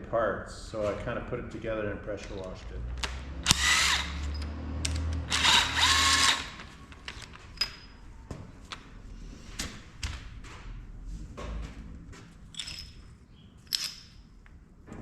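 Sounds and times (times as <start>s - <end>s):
power tool motor spinning up: 3.3s - 6.7s
metal tools clinking: 3.5s - 8.0s, 12.5s - 14.3s.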